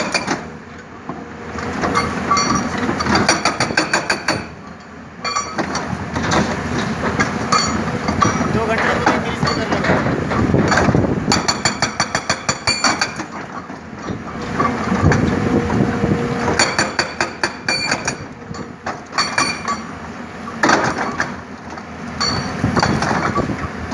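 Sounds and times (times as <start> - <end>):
hydraulic breaker hammering: 1.9 - 4.6, 5.3 - 13.6, 16.4 - 19.9
diesel engine running: 4.5 - 11.4.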